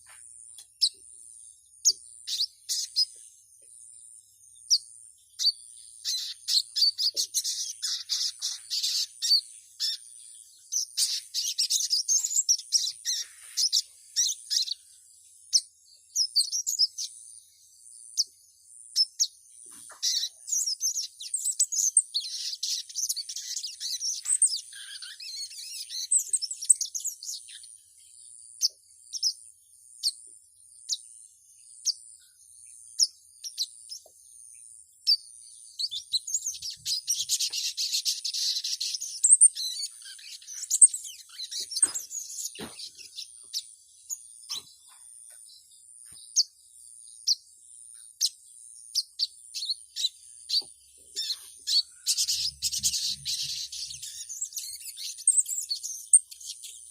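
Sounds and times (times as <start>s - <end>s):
high-pitched bird chirps: 1.8s - 3.2s, 4.6s - 14.9s, 19.0s - 27.8s, 35.0s - 45.4s, 47.3s - 56.9s
bird rapid chattering: 6.0s - 10.1s, 10.8s - 14.8s, 19.7s - 26.9s, 35.9s - 45.0s, 51.2s - 56.6s.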